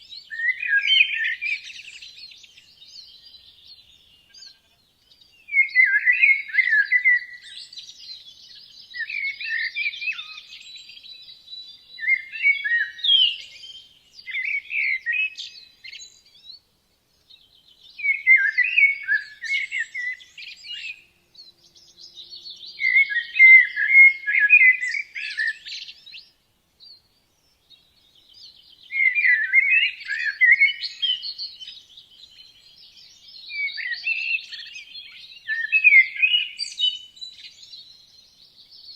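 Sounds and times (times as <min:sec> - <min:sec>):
faint high bird twittering: 0:00.0 - 0:38.9
songbird warbling: 0:21.6 - 0:26.2.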